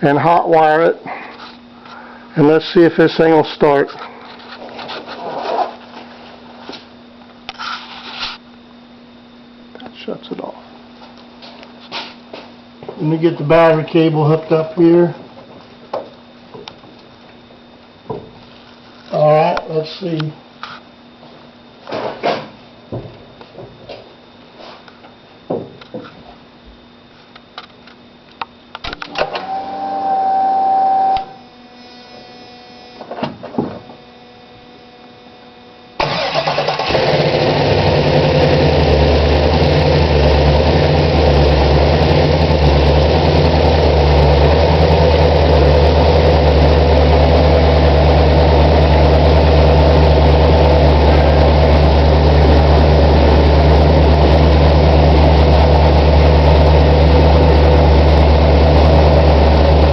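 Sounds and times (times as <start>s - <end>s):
starter whine: 28.7s - 59.9s
engine firing and idling: 36.0s - 59.9s.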